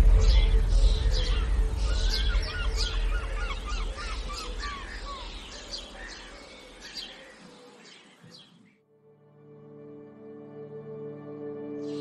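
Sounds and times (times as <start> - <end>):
low rumble: 0.0 - 6.2
birds chirping and calling: 0.0 - 8.8.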